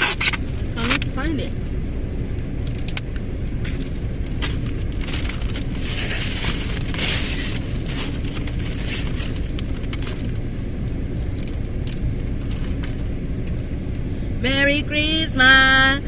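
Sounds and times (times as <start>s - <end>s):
car interior rumble: 0.0s - 16.0s
crinkling and rustling: 3.6s - 10.4s.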